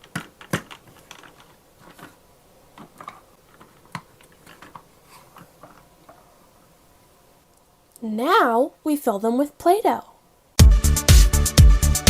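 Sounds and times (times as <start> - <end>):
plastic toy parts clicking: 0.0 - 2.2.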